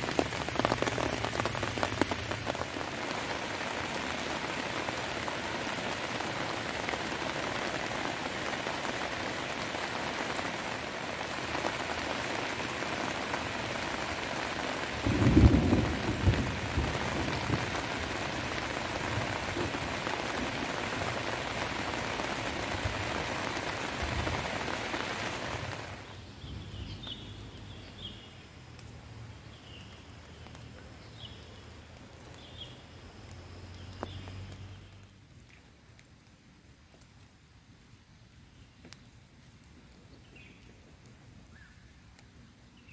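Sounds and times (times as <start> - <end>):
heavy rain falling: 0.0 - 35.3
low rumble of thunder: 15.0 - 20.7.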